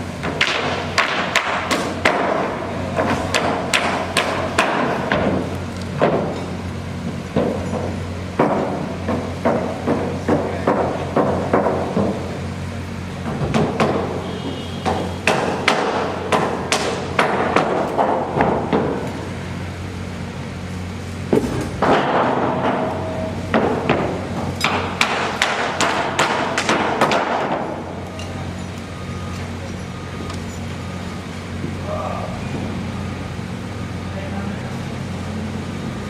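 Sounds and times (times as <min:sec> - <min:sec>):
low machine hum: 0:00.0 - 0:36.0
hammer blows: 0:13.3 - 0:19.3.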